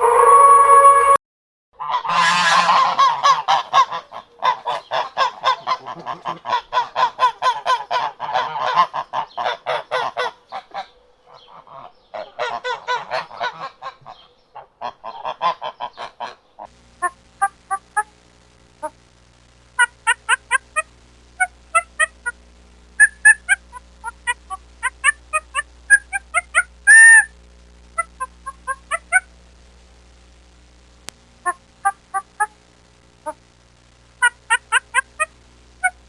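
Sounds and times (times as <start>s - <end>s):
geese honking: 0.0s - 1.2s, 1.8s - 18.1s, 19.8s - 22.4s, 23.0s - 27.3s, 28.0s - 29.3s, 34.2s - 36.0s.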